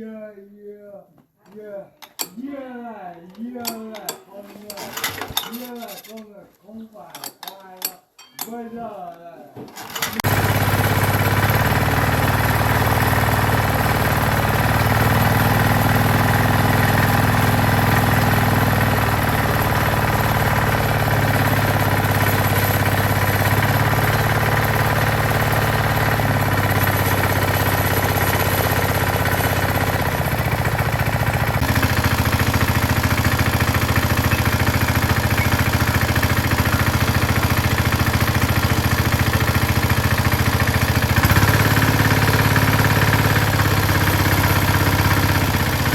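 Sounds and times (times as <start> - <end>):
tiller engine running: 5.0 - 5.5, 9.8 - 45.9.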